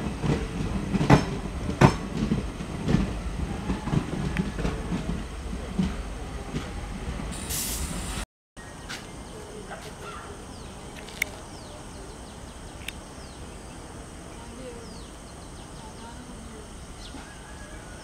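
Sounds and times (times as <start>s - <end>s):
train coaches rumbling past: 0.0s - 8.2s, 11.5s - 18.0s
open-air ambience: 0.0s - 18.0s
short hiss: 7.4s - 8.2s.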